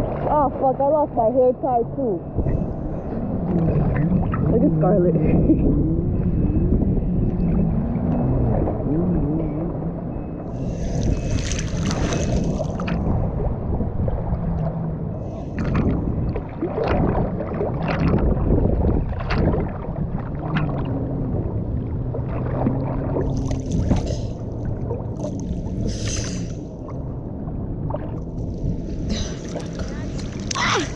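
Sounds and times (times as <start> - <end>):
jet ski engine running: 0.0 - 25.9
water slapping: 10.5 - 27.2, 27.8 - 30.9.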